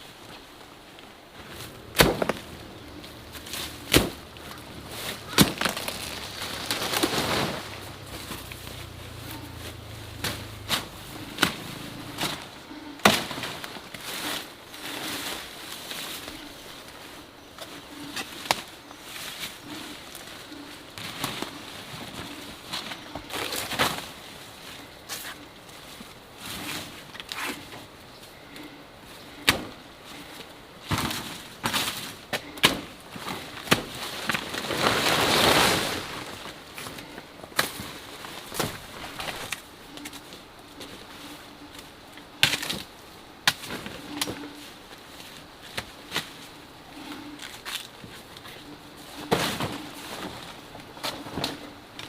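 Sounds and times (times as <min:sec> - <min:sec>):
plant leaves rustling: 0:00.0 - 0:52.0
sharp cracks and knocks: 0:01.9 - 0:02.5, 0:03.4 - 0:04.6, 0:05.3 - 0:07.2, 0:42.4 - 0:44.4.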